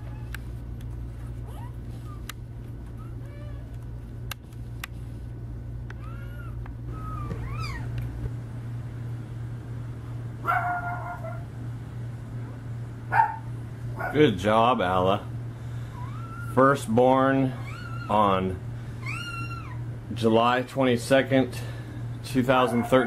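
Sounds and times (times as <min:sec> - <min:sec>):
steady low hum: 0:00.0 - 0:23.0
puppies squeaking and mewing: 0:01.2 - 0:02.3, 0:02.9 - 0:03.7, 0:06.0 - 0:07.9, 0:15.9 - 0:16.7, 0:17.4 - 0:18.3, 0:18.9 - 0:19.9.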